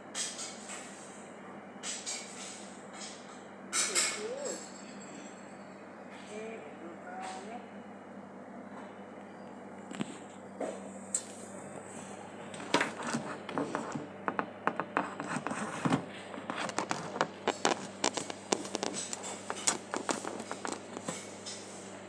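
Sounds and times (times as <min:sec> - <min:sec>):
faint steady hum: 0:04.2 - 0:22.0
scratching and clicking: 0:12.5 - 0:21.6.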